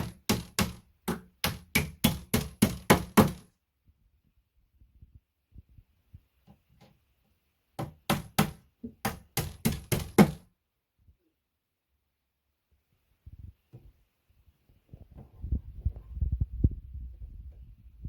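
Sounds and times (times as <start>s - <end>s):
sharp knocks on furniture parts: 0.0s - 3.5s, 7.8s - 10.5s.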